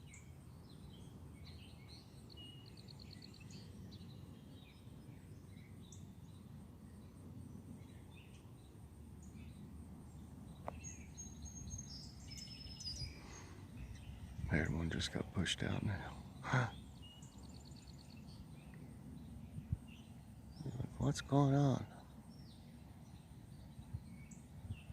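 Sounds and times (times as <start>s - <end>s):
faint songbird chirps: 0.0s - 24.9s
bird trill: 10.6s - 18.8s.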